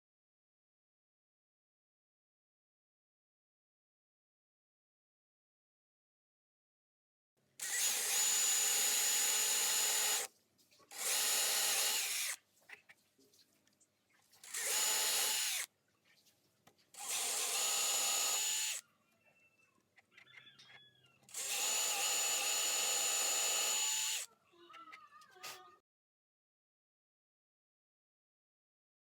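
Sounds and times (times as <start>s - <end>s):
electric drill whining: 7.6s - 10.3s, 10.9s - 12.4s, 14.4s - 15.7s, 17.0s - 18.8s, 21.3s - 24.3s.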